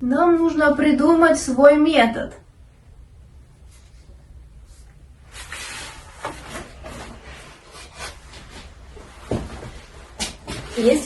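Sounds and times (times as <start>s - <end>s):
scratchy rubbing strokes: 3.6s - 11.0s.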